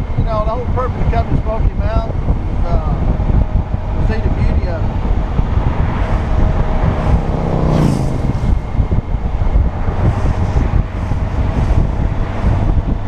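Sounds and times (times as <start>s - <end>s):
motorcycle road noise: 0.0s - 13.0s
wind rush: 0.0s - 13.0s
vehicle passing by: 2.7s - 13.0s.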